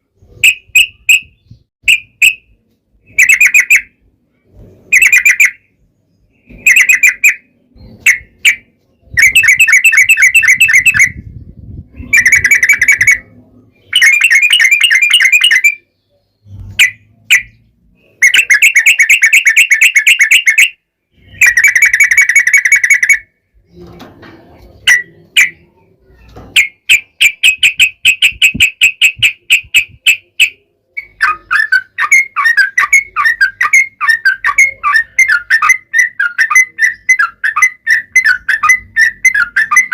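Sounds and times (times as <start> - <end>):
bird singing rattling phrases: 0.0 - 39.9.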